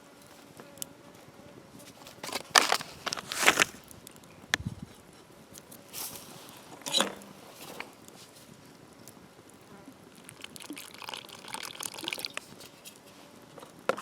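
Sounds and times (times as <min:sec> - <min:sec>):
scraping and rustling handling noises: 0:01.8 - 0:04.0, 0:04.9 - 0:08.7.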